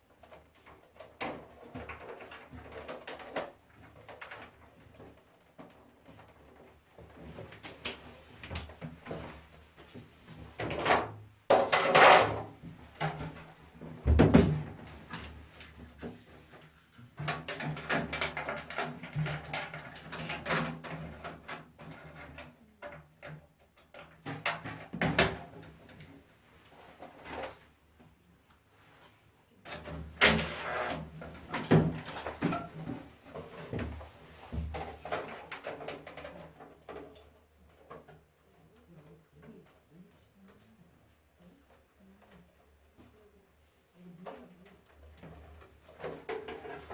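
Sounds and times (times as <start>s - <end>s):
clatter of parts being handled: 31.4s - 34.0s.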